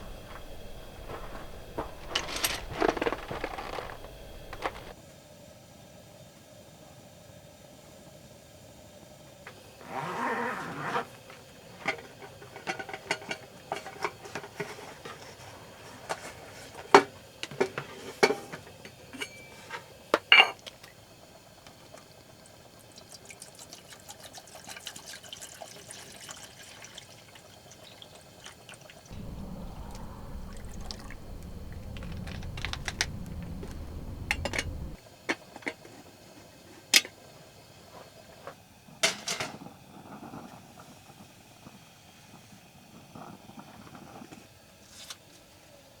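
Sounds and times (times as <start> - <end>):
steady low rumble: 0.0 - 5.0, 29.1 - 35.0
utensils clinking on cookware: 0.4 - 4.9, 11.7 - 15.2, 17.0 - 20.7
liquid being poured: 22.8 - 31.2.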